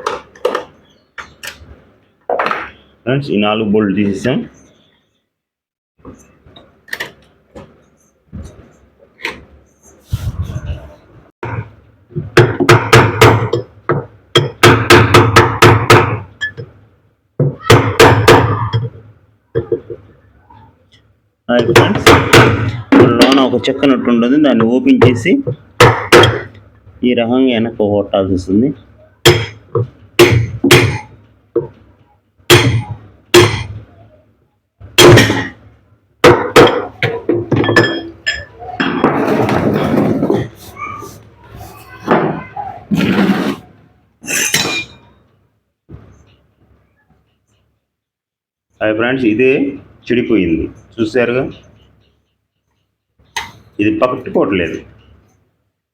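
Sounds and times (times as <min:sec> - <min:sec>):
hammer striking metal: 0:29.2 - 0:29.6, 0:32.5 - 0:33.8, 0:44.2 - 0:45.1.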